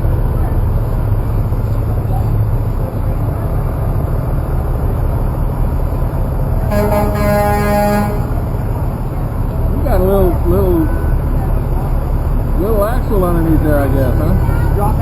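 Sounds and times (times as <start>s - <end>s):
trucks rumbling past: 0.0s - 15.0s
truck horn blast: 6.6s - 8.6s.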